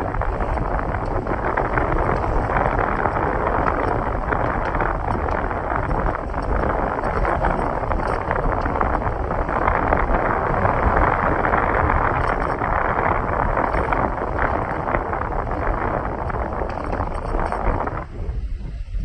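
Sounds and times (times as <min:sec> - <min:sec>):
motorcycle road noise: 0:00.0 - 0:19.0
wind rushing over microphone: 0:00.0 - 0:19.0.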